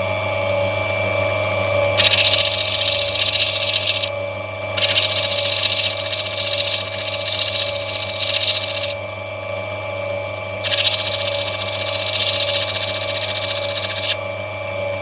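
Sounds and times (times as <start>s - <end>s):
stone grinding hiss: 2.0s - 4.1s, 4.8s - 9.0s, 10.6s - 14.2s
grinding wheel motor running: 2.0s - 4.2s, 4.8s - 9.0s, 10.6s - 14.2s.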